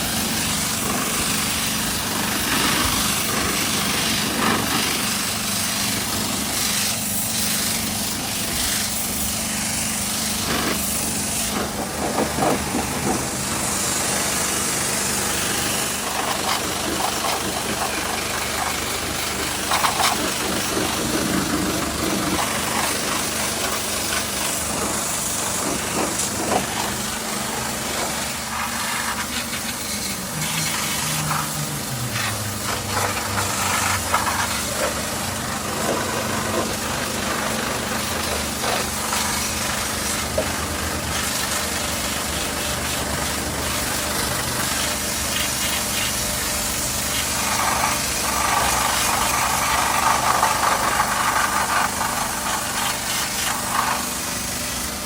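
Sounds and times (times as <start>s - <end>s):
motor humming: 8.4s - 37.4s.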